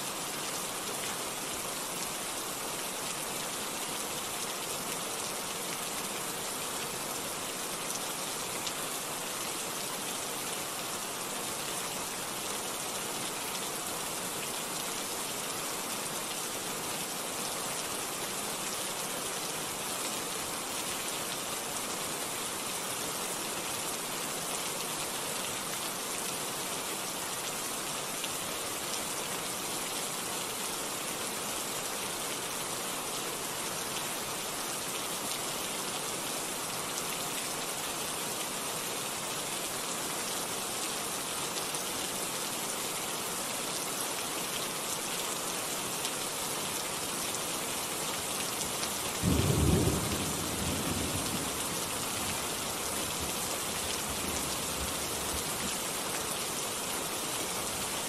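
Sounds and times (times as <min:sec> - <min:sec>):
steady rain falling: 0:00.0 - 0:58.0
low rumble of thunder: 0:49.3 - 0:51.6.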